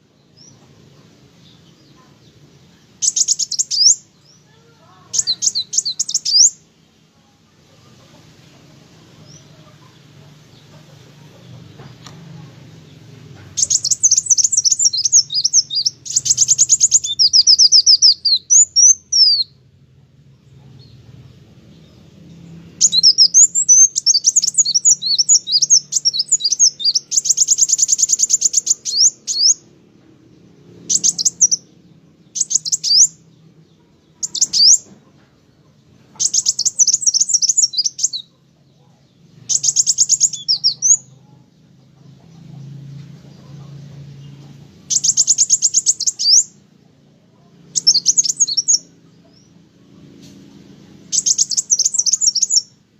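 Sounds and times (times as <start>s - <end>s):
bird twittering and trilling: 1.4s - 6.7s, 9.0s - 19.7s, 20.5s - 29.7s, 30.6s - 52.9s.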